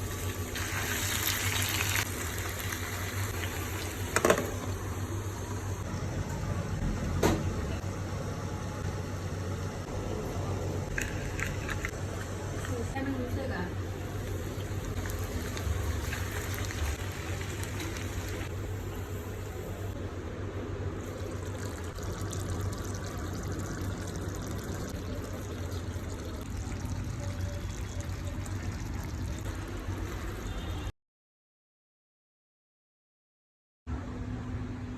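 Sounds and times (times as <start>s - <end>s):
gravy bubbling in a pan: 14.0s - 18.7s, 21.0s - 30.6s.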